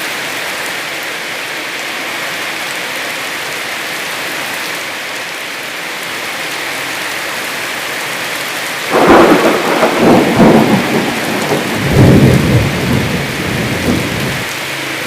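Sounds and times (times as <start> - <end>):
heavy rain: 0.0 - 15.0
thunder peal: 8.9 - 14.5.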